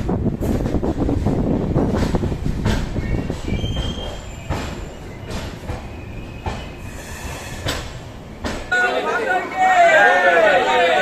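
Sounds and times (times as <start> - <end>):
train rumbling on rails: 0.0 - 11.0
high-pitched wheel squeal: 3.4 - 5.2.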